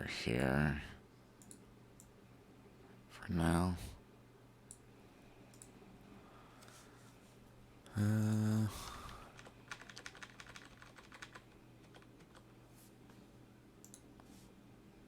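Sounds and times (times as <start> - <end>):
keyboard and mouse clicks: 9.4 - 12.5, 13.8 - 14.1.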